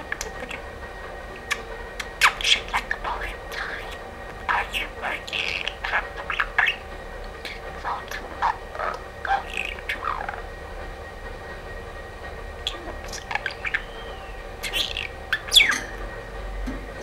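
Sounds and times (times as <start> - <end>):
budgerigar chirping and warbling: 0.0 - 0.7, 1.4 - 10.5, 12.6 - 16.1
budgerigar squeak falling in pitch: 12.7 - 16.0.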